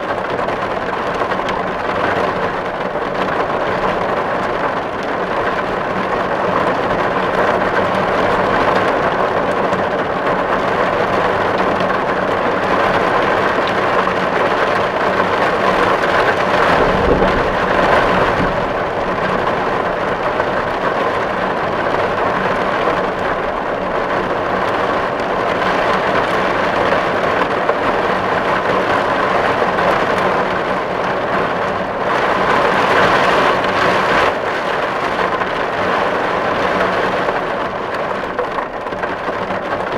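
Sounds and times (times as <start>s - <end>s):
heavy rain on a tin roof: 0.0s - 39.9s
low rumble: 15.8s - 22.0s.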